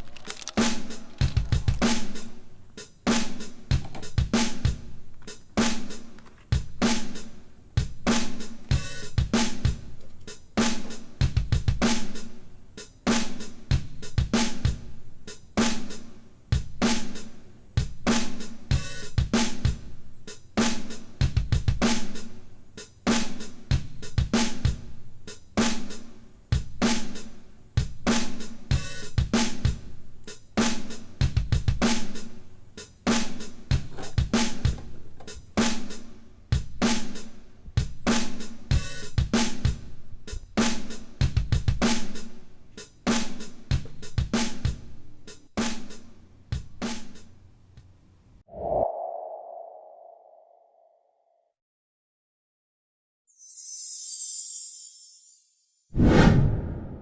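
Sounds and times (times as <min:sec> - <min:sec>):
drum-heavy music: 0:00.0 - 0:14.9, 0:15.6 - 0:19.9, 0:20.6 - 0:22.2, 0:30.6 - 0:32.3, 0:33.0 - 0:42.4, 0:43.0 - 0:46.0.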